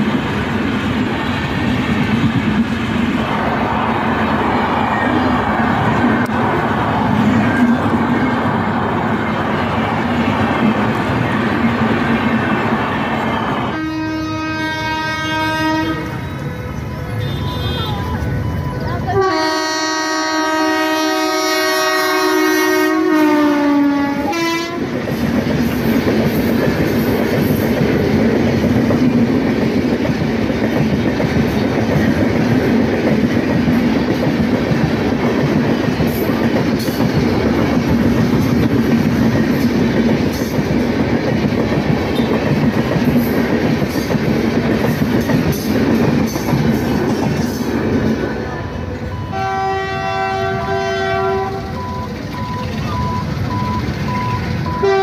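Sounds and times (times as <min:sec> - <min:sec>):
passenger train rushing past: 0:00.0 - 0:55.0
locomotive horn blast: 0:13.6 - 0:16.5, 0:17.1 - 0:18.3, 0:19.1 - 0:25.0, 0:49.2 - 0:51.9, 0:54.6 - 0:55.0.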